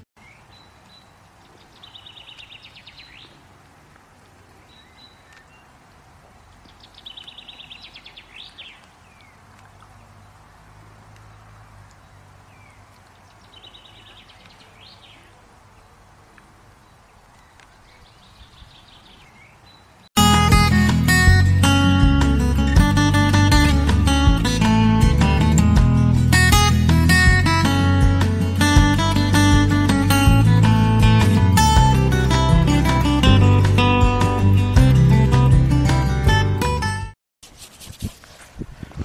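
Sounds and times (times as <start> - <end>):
songbird trilling: 0.2 - 3.4, 6.6 - 9.4, 12.0 - 15.4.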